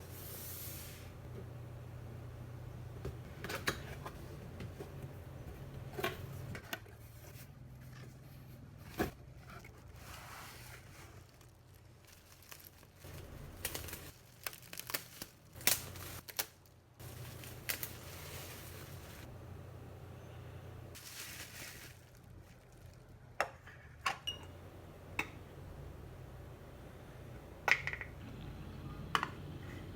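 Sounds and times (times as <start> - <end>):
low steady hum: 0.0 - 29.9
plastic packaging crinkling: 9.8 - 19.3, 21.0 - 23.4
packaging tearing: 11.2 - 18.7.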